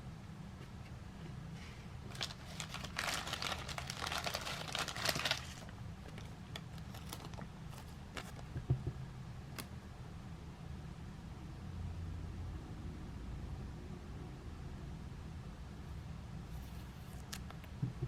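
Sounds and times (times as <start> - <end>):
wrapper crinkling: 2.1 - 8.4.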